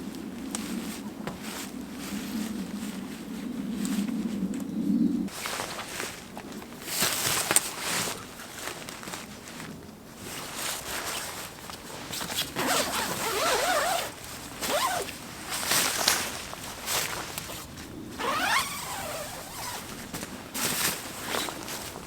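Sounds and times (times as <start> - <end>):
zipper being pulled: 12.4 - 15.1, 18.1 - 20.1.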